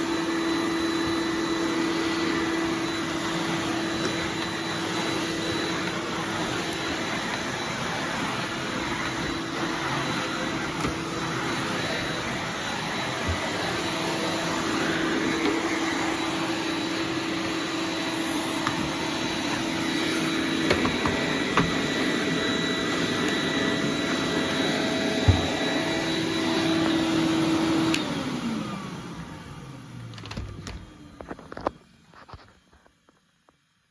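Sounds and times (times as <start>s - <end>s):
vacuum cleaner running: 0.0s - 32.5s.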